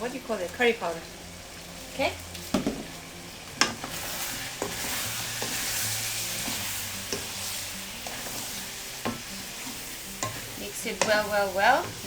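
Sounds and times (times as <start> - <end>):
food sizzling in a pot: 0.0 - 12.0
utensil clicking against pot: 9.0 - 12.0.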